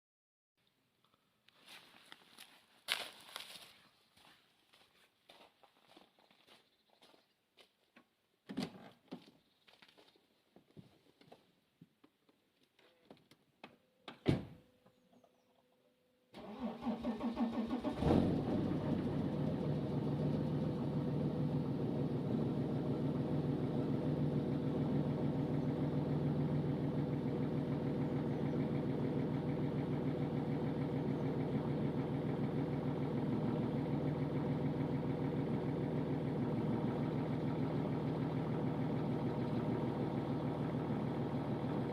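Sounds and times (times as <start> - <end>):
diesel engine cranking and idling: 16.4 - 41.9.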